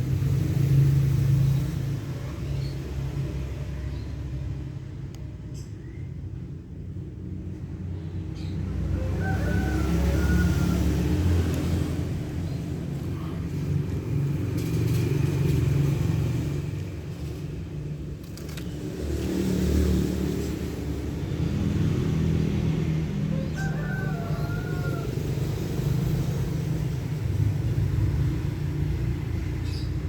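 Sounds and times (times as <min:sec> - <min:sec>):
faint rooster crowing: 0:08.7 - 0:13.7, 0:23.1 - 0:26.0.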